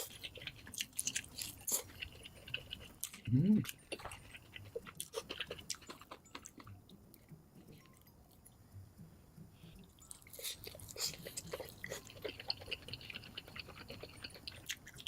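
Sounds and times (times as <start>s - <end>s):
chewing food crunches: 0.0s - 7.9s.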